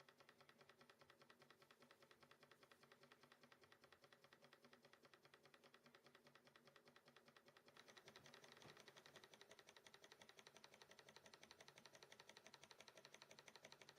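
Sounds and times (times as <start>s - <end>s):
model engine ticking: 0.0s - 13.9s.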